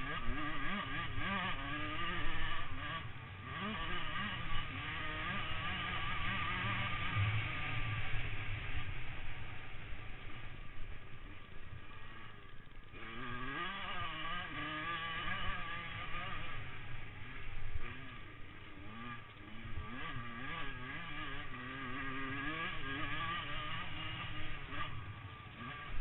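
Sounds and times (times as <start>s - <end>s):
motocross bike engines revving: 0.0s - 26.0s.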